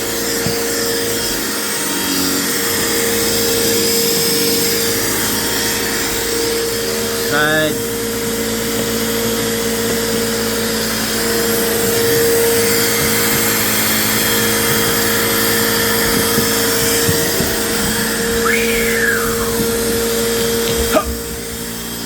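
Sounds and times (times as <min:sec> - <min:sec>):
vacuum cleaner running: 0:00.0 - 0:22.0
brief whistle: 0:18.4 - 0:19.6.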